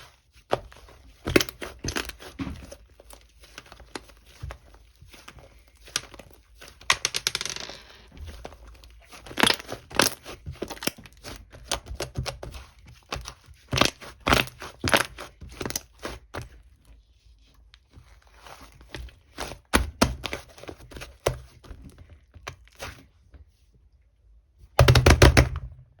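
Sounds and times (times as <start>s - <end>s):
slime crackling and popping: 9.1s - 16.2s.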